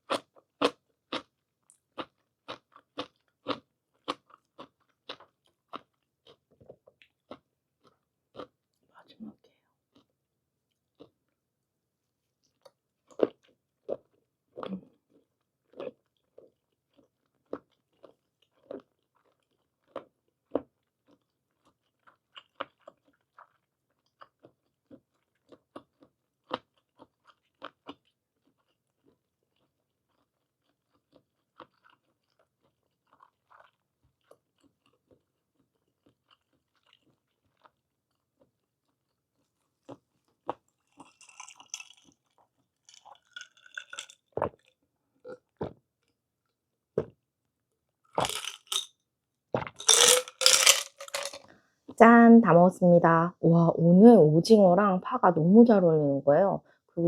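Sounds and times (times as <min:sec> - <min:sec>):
person chewing with mouth clicks: 0:12.4 - 0:39.2, 0:39.8 - 0:47.2, 0:48.1 - 0:48.9.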